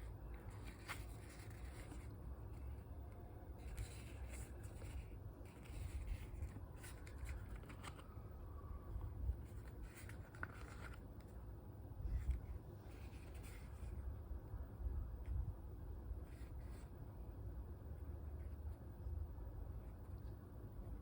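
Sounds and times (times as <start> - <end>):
paper and card rustling: 0.0 - 8.3, 9.0 - 11.4, 12.1 - 14.0.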